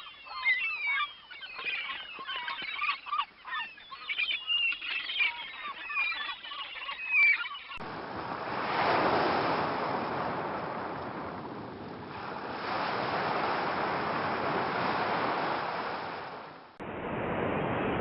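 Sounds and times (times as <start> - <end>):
flock of birds calling: 0.0 - 7.8.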